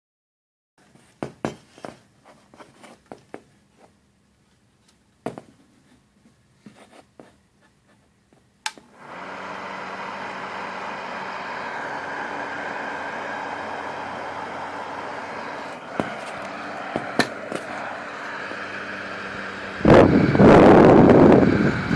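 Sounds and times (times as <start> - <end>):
hair dryer motor and fan: 8.7 - 21.9.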